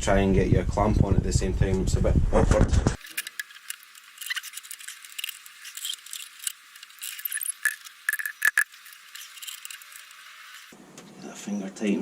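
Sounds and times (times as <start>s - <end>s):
metallic clinks and rattles: 3.0s - 10.7s.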